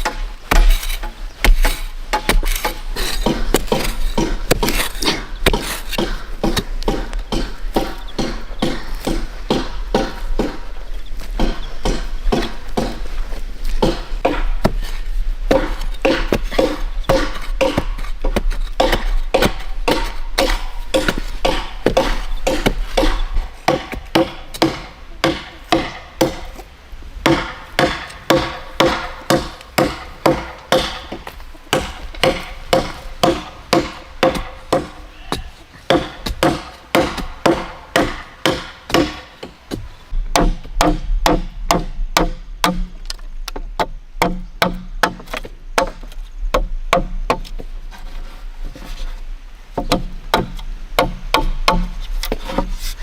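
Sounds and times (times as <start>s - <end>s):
wood being chopped: 0.0s - 10.6s, 11.4s - 13.0s, 15.5s - 26.6s, 27.2s - 47.6s, 49.8s - 52.7s.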